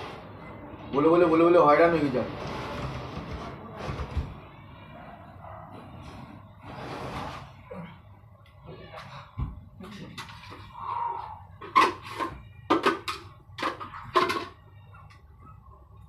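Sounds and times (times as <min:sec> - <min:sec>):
hard objects clanking and knocking: 0:11.6 - 0:14.6.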